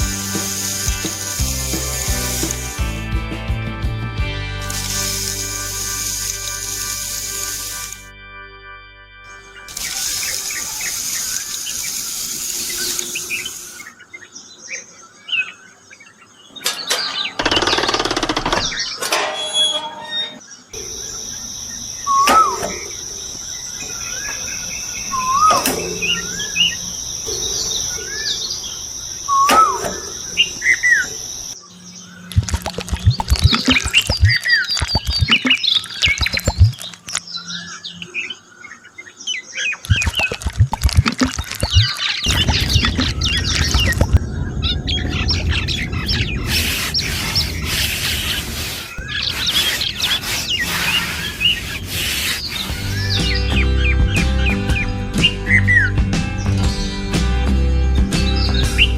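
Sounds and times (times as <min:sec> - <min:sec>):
bird chirps: 0:09.3 - 0:55.9
quick clicks: 0:32.3 - 0:37.2, 0:39.8 - 0:44.2.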